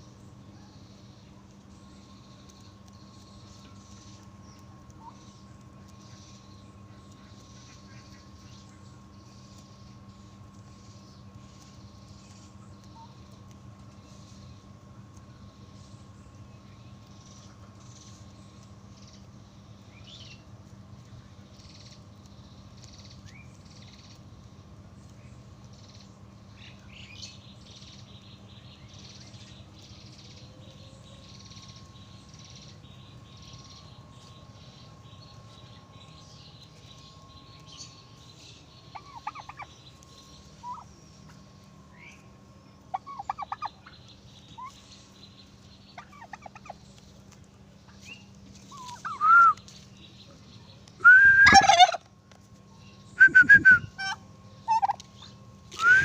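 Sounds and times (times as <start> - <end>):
steady low hum: 0.0 - 56.0
rapid stuttering bird calls: 24.9 - 47.2, 47.8 - 52.0.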